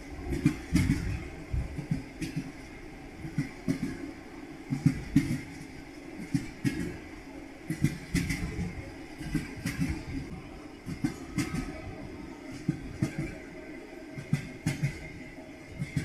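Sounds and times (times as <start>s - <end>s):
train wheels clattering over rail joints: 0.2s - 4.0s, 4.7s - 7.0s, 7.7s - 10.3s, 10.9s - 11.9s, 12.5s - 13.6s, 14.2s - 16.0s.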